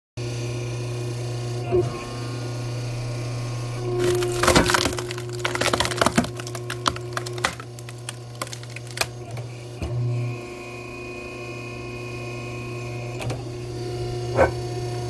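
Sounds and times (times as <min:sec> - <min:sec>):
wood cracking and splintering: 0:04.0 - 0:09.2.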